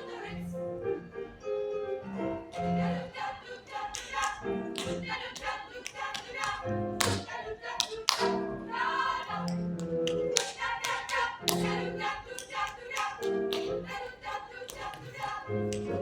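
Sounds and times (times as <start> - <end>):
sharp tapping or clapping beats: 3.9 - 8.4, 9.5 - 13.8.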